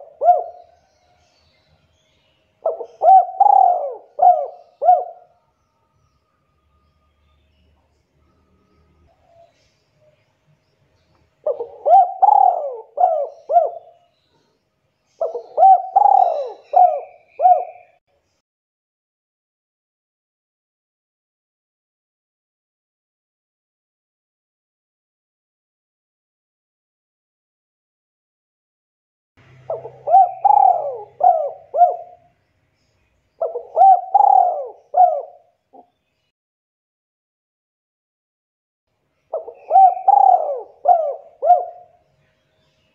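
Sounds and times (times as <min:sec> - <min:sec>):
dove cooing: 0:00.0 - 0:00.8, 0:02.6 - 0:05.3, 0:11.4 - 0:14.0, 0:15.2 - 0:18.0, 0:29.7 - 0:32.3, 0:33.4 - 0:35.9, 0:39.3 - 0:42.0.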